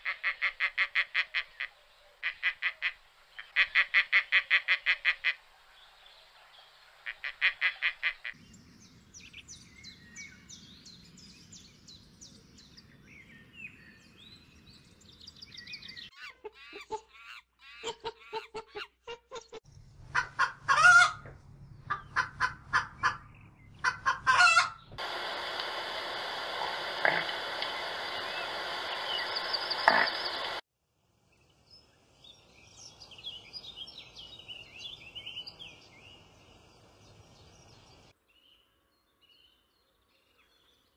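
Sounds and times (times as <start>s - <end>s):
loud bird clucking: 0.0s - 5.4s, 16.2s - 25.0s
steady hiss: 25.0s - 30.6s.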